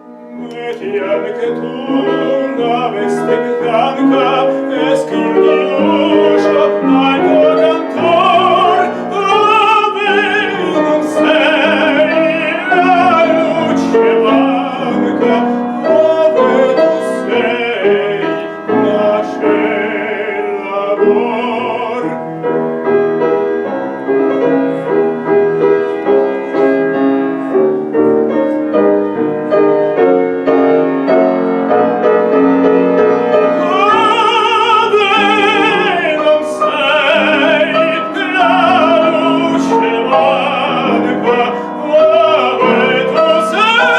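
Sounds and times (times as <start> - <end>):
piano: 0.0 - 43.9
operatic singing: 0.1 - 22.5, 33.0 - 43.9.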